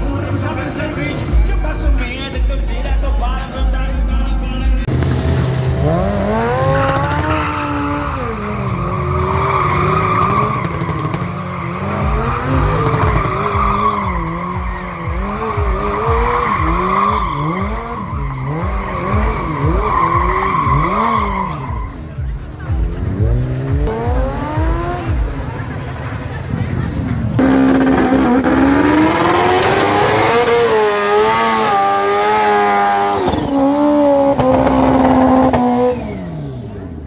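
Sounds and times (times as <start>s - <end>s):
engine revving: 4.8s - 37.0s
tyre squeal: 5.8s - 22.1s, 27.4s - 36.7s.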